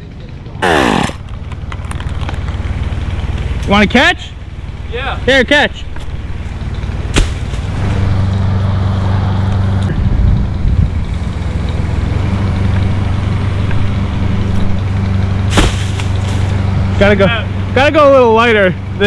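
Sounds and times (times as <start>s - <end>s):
chainsaw cutting under load: 0.6s - 1.2s.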